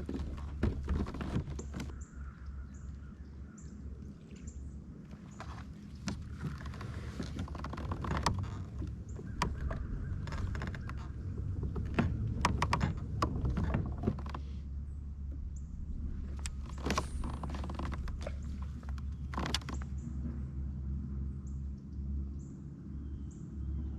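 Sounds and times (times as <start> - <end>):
gear knocking and clicking: 0.0 - 2.0, 5.4 - 14.6, 16.3 - 20.0
steady low rumble: 0.0 - 23.9.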